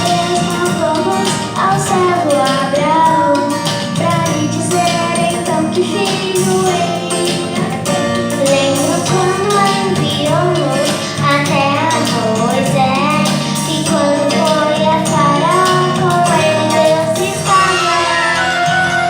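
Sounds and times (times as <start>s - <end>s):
instrumental accompaniment: 0.0s - 19.0s
group of voices singing: 13.2s - 19.0s.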